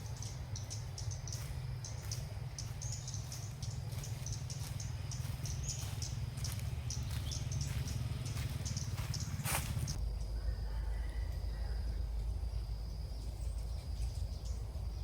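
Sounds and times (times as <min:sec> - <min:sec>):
birds giving high chirps: 0:00.0 - 0:10.5
steady low rumble: 0:00.0 - 0:15.0.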